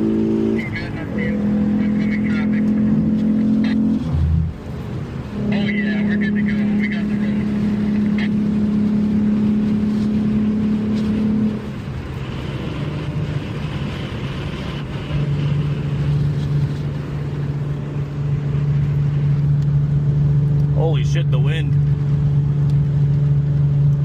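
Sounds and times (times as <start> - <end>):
car engine running: 0.0 - 24.0
road noise: 0.0 - 24.0.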